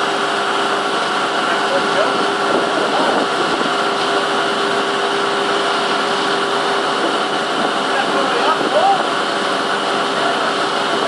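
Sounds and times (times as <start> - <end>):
heavy machinery running: 0.0 - 11.0.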